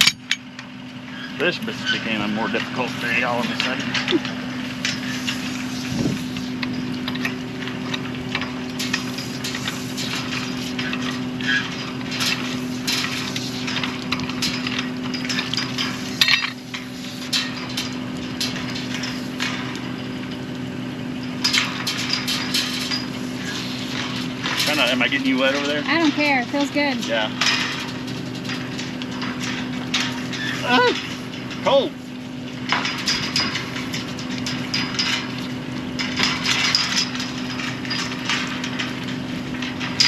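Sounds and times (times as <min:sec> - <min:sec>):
metal pipe clinks and knocks: 0:00.0 - 0:00.7, 0:03.6 - 0:20.4
engine running steadily: 0:00.0 - 0:40.0.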